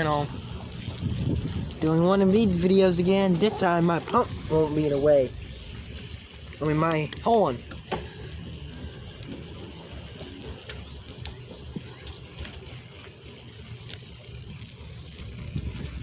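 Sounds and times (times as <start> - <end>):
bike clicks and rattles: 0.0 - 16.0
road and wind rumble: 0.0 - 16.0.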